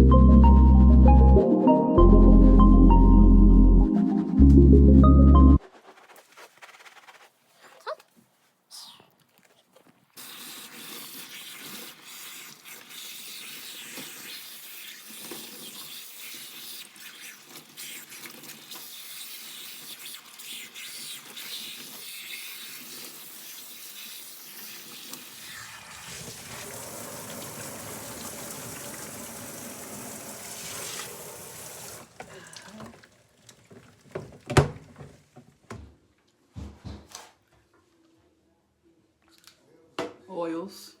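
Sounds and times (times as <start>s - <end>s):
running water from a tap: 10.2s - 34.2s.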